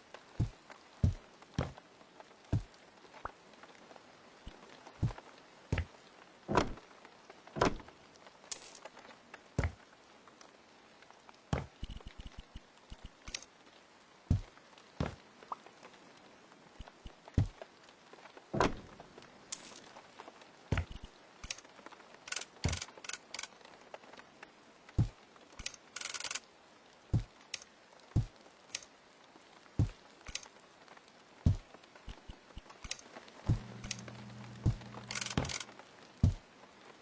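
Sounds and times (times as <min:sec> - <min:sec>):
hard objects knocking and clicking: 0:33.5 - 0:36.4
low steady hum: 0:33.5 - 0:36.4.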